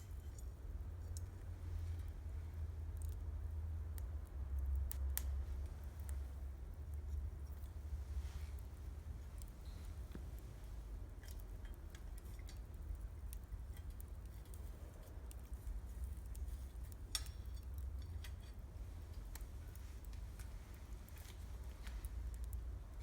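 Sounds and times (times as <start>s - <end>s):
campfire crackling and popping: 2.8s - 23.0s.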